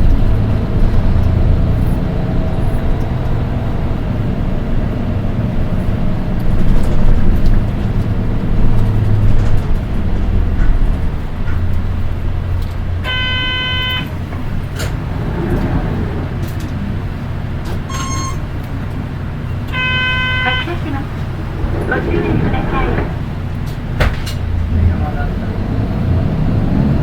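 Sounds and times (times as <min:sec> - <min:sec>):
bus engine and road rumble: 0:00.0 - 0:27.0
short electronic tone: 0:17.9 - 0:18.4.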